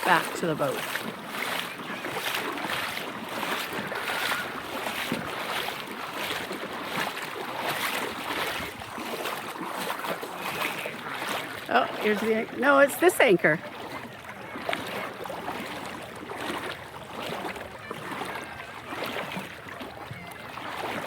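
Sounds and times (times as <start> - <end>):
water splashing and lapping: 0.0 - 21.0.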